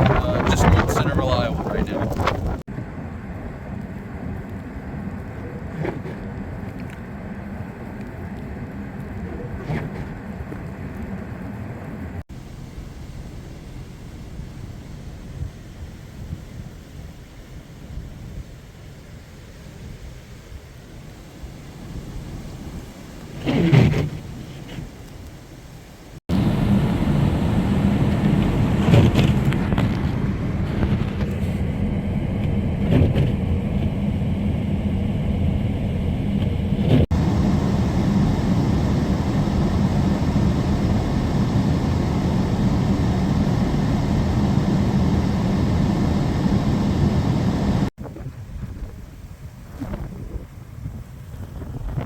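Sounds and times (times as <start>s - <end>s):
wind blasting microphone: 0.0s - 11.5s, 26.2s - 52.0s.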